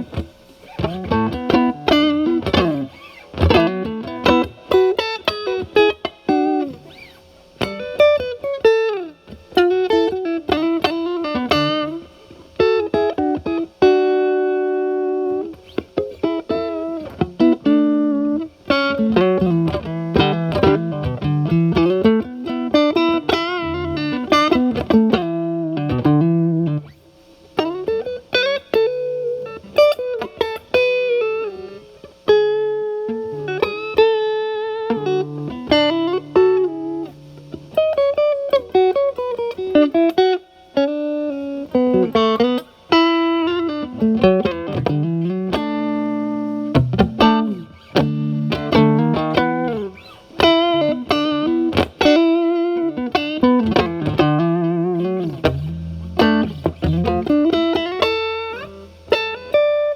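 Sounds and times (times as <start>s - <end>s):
overdriven electric guitar lead: 0.0s - 59.9s.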